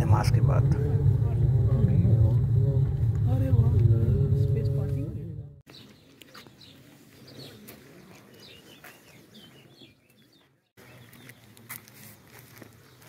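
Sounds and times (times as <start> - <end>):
low outdoor background hum: 0.0 - 5.6
small birds chirping: 5.7 - 11.6.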